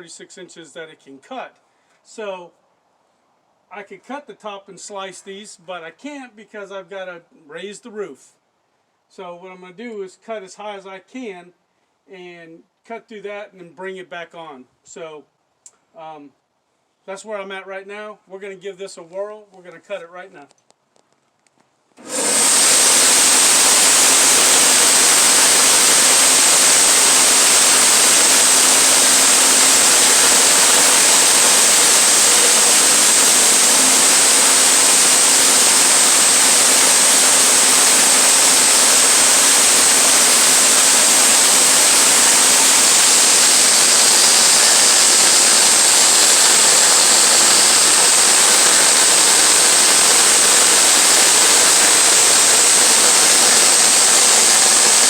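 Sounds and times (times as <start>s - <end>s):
engine hum: 22.0s - 55.0s
sawmill cutting log: 22.0s - 55.0s.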